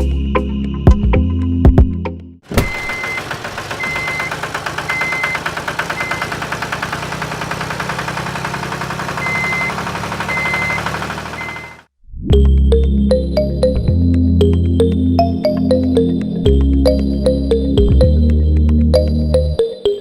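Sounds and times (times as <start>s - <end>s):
small engine knocking: 2.5s - 11.9s.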